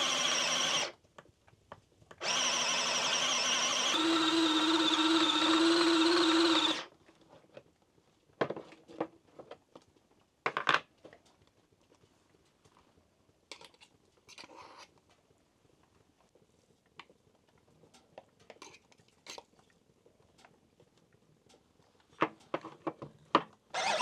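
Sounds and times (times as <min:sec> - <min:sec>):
small electric motor whirring: 0:00.0 - 0:00.9, 0:02.2 - 0:06.9, 0:23.8 - 0:24.0.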